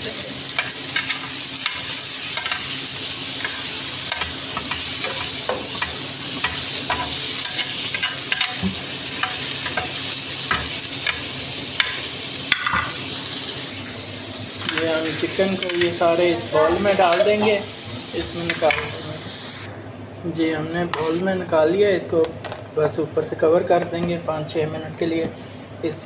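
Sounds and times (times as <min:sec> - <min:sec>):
chicken sizzling in a frying pan: 0:00.0 - 0:19.7.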